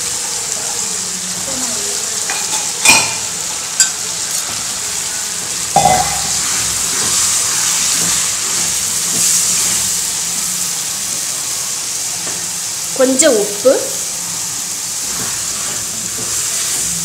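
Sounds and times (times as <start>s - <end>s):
mushrooms sizzling in oil: 0.0s - 17.0s.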